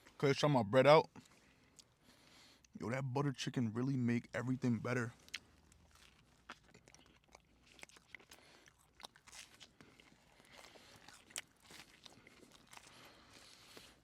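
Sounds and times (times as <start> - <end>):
person chewing food: 1.1 - 2.8, 5.1 - 14.0.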